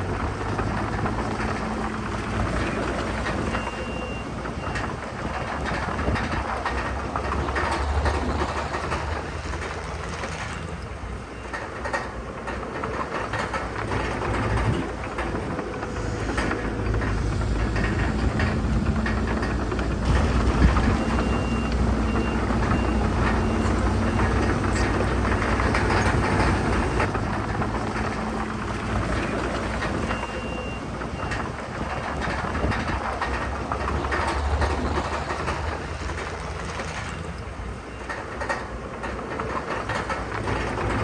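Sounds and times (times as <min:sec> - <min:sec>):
heavy machinery diesel engines: 0:00.0 - 0:41.0
metallic clanks and rattles: 0:00.4 - 0:41.0
reversing alarm beeping: 0:02.7 - 0:05.0, 0:17.8 - 0:27.1, 0:29.1 - 0:31.6.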